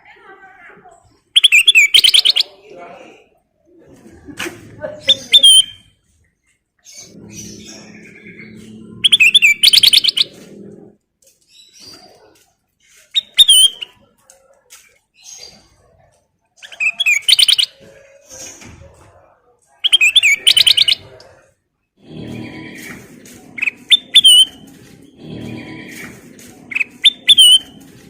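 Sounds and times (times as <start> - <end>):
bulbul chirping loudly: 1.4 - 2.5, 6.9 - 10.5, 16.6 - 17.8, 19.8 - 21.1, 23.6 - 25.3, 26.7 - 27.8
soft bird calls: 5.2 - 21.5.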